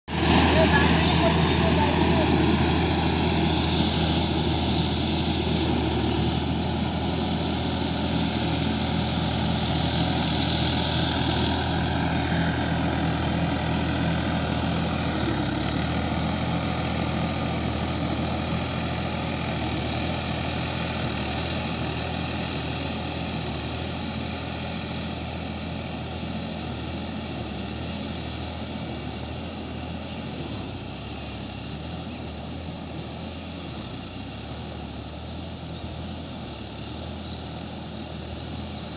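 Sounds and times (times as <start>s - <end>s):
tractor diesel engine running: 0.1s - 38.9s.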